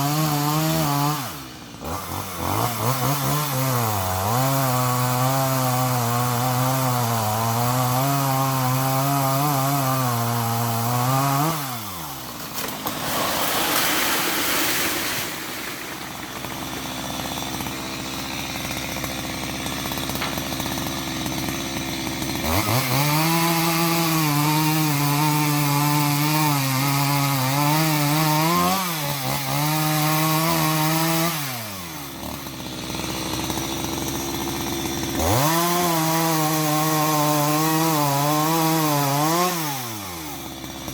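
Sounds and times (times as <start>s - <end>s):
power tool motor running: 14.5s - 23.4s.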